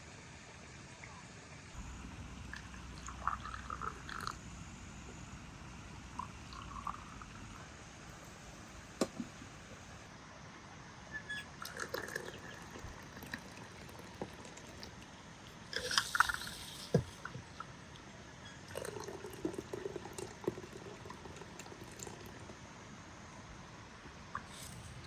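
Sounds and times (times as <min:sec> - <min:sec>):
liquid pouring and dripping: 0:01.8 - 0:09.9, 0:11.4 - 0:22.8.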